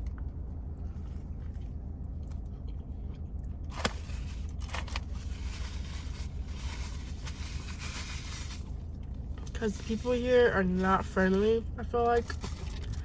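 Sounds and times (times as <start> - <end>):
steady low hum: 0.0 - 13.0
crackly rustle: 3.7 - 10.2, 12.2 - 13.0.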